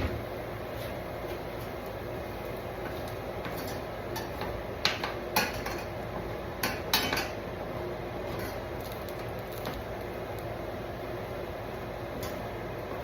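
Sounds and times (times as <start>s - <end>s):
metal utensils clinking on dishes: 6.6s - 7.4s.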